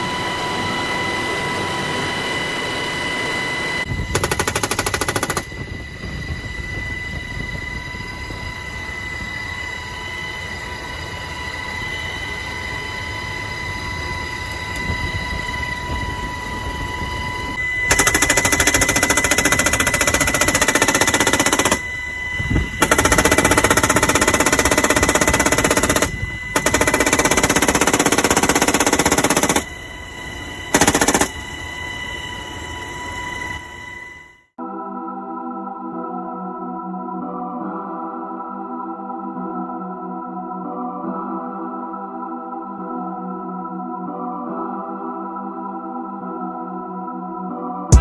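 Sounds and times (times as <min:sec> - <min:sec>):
helicopter cabin whine: 0:00.0 - 0:34.4
machine gun automatic fire: 0:04.1 - 0:05.6, 0:17.9 - 0:21.9, 0:22.8 - 0:29.8, 0:30.7 - 0:31.4.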